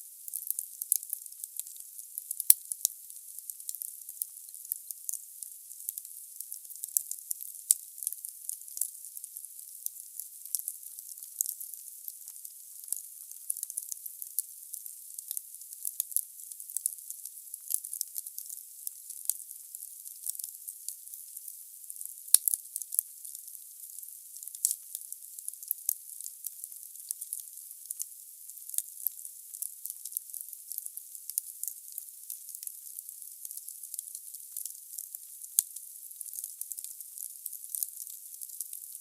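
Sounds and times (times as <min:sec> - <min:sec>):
wood fire crackling and hissing: 0:00.2 - 0:02.9, 0:21.0 - 0:28.0.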